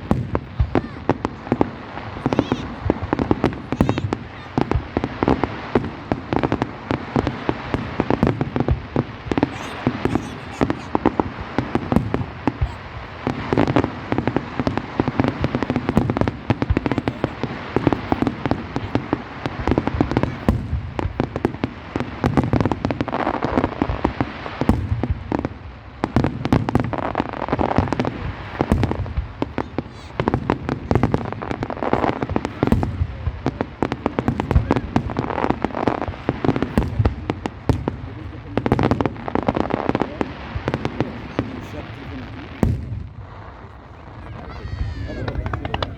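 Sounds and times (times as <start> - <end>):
fireworks bangs and crackling: 0.0 - 45.9.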